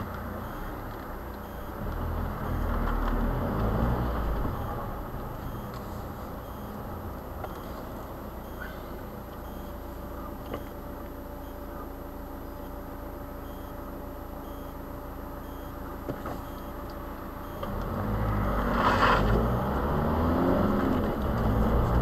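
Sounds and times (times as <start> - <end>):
car engine idling and accelerating: 0.0 - 22.0.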